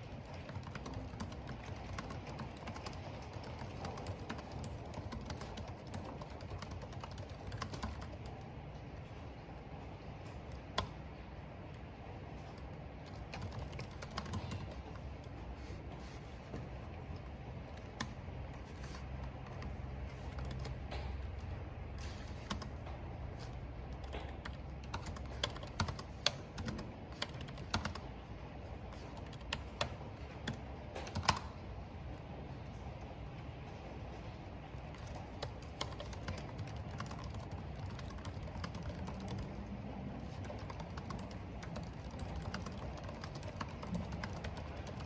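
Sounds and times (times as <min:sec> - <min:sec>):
typing on computer keyboard: 0:00.0 - 0:08.5, 0:12.4 - 0:15.3, 0:17.6 - 0:28.2, 0:28.9 - 0:31.6, 0:34.8 - 0:45.0.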